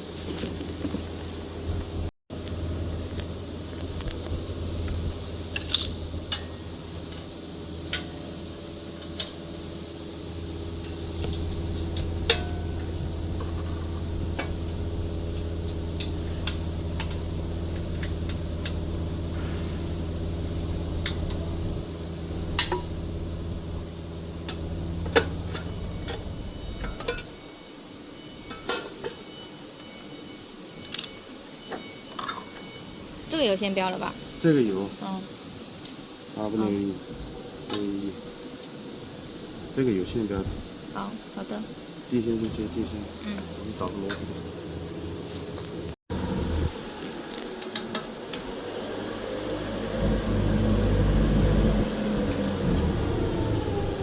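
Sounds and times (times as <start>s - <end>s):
low machine hum: 0.0s - 27.5s, 39.8s - 47.0s, 48.5s - 54.0s.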